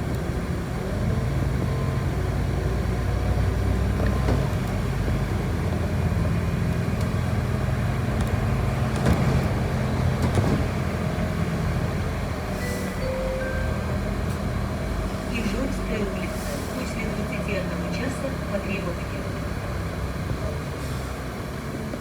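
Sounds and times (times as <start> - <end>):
bus engine hum: 0.0 - 22.0
road noise: 0.0 - 22.0.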